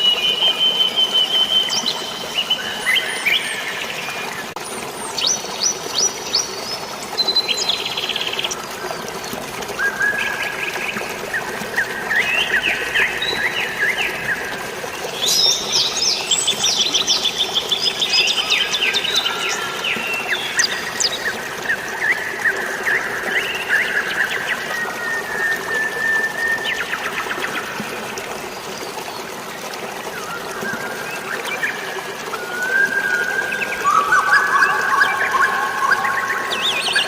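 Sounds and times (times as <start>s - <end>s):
songbirds chirping and trilling: 30.6s - 37.0s.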